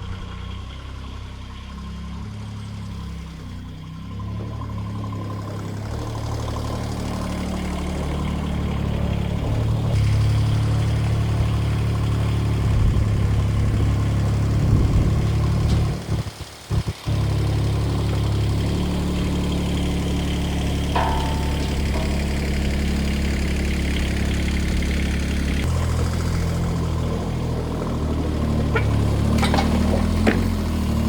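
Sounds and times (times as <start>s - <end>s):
diesel tractor engine running: 0.0s - 31.0s.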